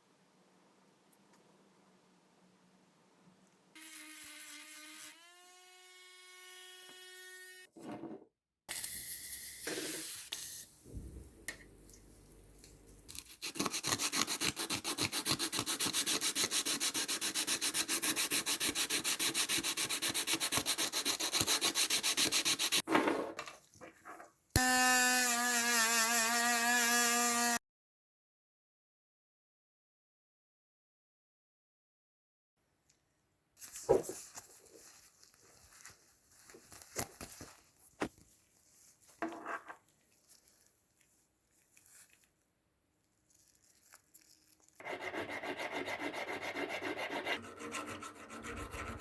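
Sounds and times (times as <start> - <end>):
small electric tool whining: 3.8 - 7.7, 24.6 - 27.6
rapid rasping sanding strokes: 13.3 - 22.8, 44.8 - 49.0.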